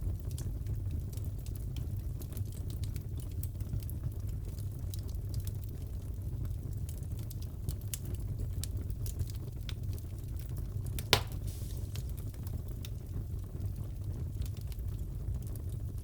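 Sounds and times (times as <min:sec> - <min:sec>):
wood fire crackling: 0:00.1 - 0:16.0
sharp pop of fire: 0:11.0 - 0:12.3.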